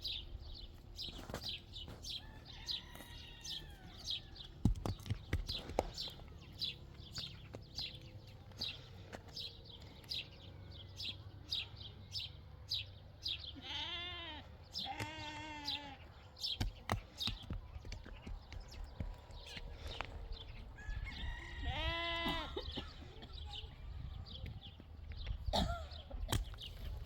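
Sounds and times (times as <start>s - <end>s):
farm animal bleating: 13.3s - 16.3s, 21.4s - 23.0s.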